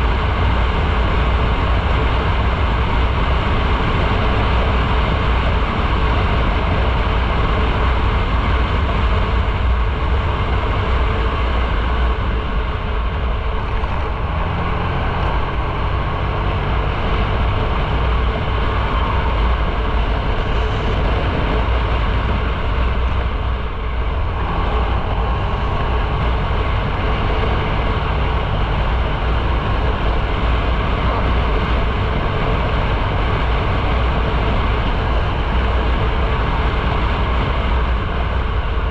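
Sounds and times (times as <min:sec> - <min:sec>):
motorcycle engine: 0:00.0 - 0:38.9
tyres on road: 0:00.0 - 0:38.9
wind rush on microphone: 0:00.0 - 0:38.9.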